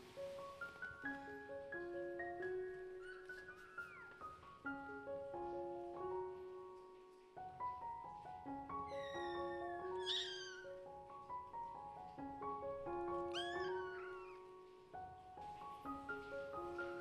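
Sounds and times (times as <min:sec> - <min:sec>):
kitten meowing: 0:08.9 - 0:10.8, 0:13.3 - 0:14.5.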